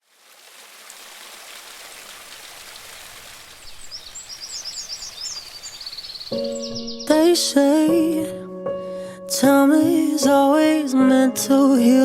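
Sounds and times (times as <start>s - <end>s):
rush of falling water: 0.0s - 6.3s
bird chirping: 3.5s - 7.5s.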